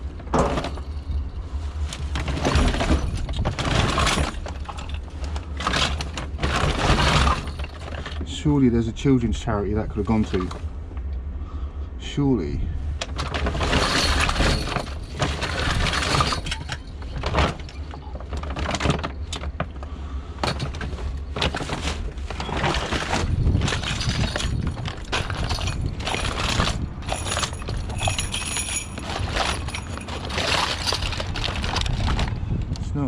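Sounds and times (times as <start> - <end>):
toys and junk clattering: 0.0 - 8.5, 9.9 - 10.7, 13.0 - 32.4.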